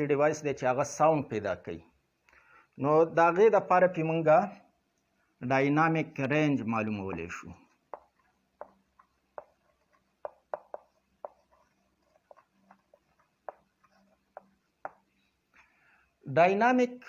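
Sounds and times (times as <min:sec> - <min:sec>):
pen tapping and scratching: 0:06.9 - 0:15.2.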